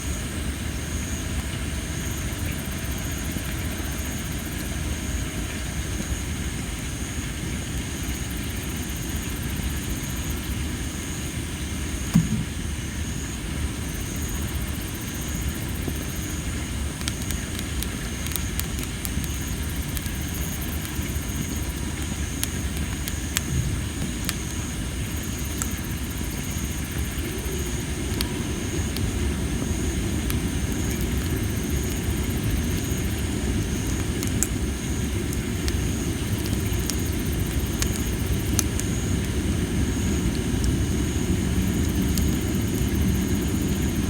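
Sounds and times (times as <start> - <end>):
campfire rumble: 0.0 - 44.0
insects chirping: 0.0 - 44.0
pulsing insect call: 0.0 - 44.0
fire crackles: 0.2 - 44.0
loud wood pop: 12.1 - 12.6.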